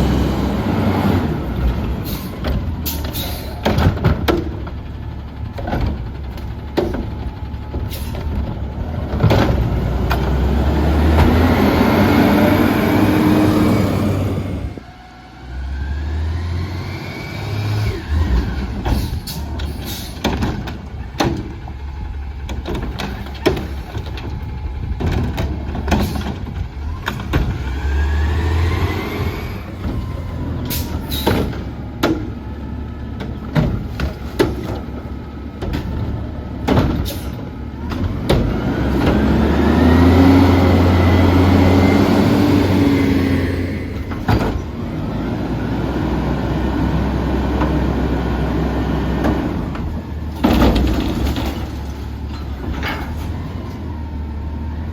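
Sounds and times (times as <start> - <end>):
diesel engine revving: 0.0 - 54.9
metal clanks and knocks: 2.4 - 4.8, 18.8 - 21.7, 22.4 - 27.6, 33.2 - 39.2, 49.2 - 53.8.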